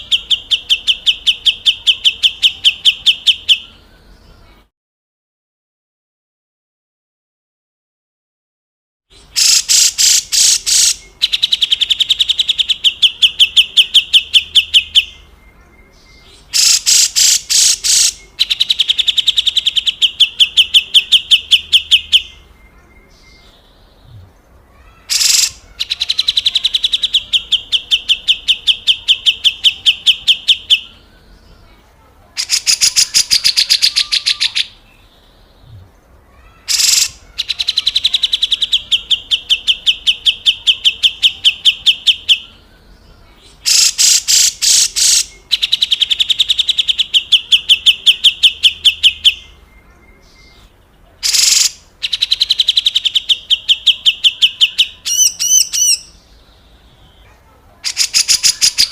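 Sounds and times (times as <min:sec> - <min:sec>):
bird giving harsh rattling call: 0:09.3 - 0:14.2, 0:16.5 - 0:21.3, 0:24.8 - 0:27.7, 0:32.4 - 0:34.8, 0:36.4 - 0:38.8, 0:43.6 - 0:47.7, 0:51.2 - 0:53.6, 0:57.8 - 0:58.9.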